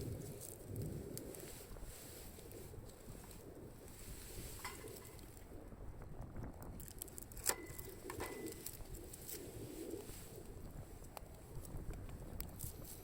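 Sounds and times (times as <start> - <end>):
dove cooing: 7.5 - 10.8.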